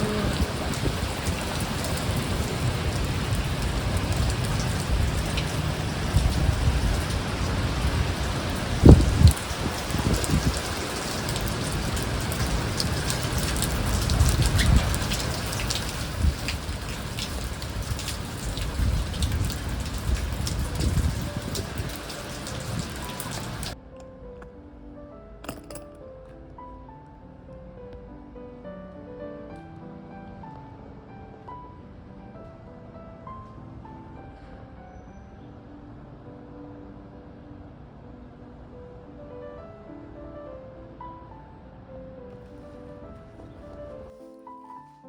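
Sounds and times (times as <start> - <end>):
heavy rain: 0.0 - 23.8.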